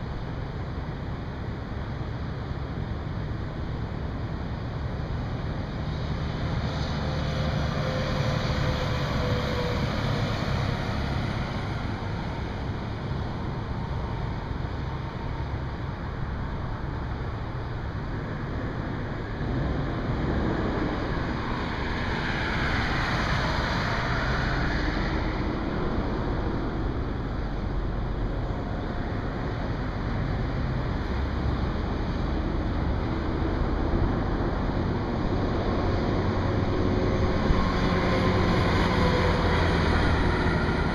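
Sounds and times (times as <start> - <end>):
highway traffic noise: 0.0 - 40.9
vehicle passing by: 29.8 - 40.9.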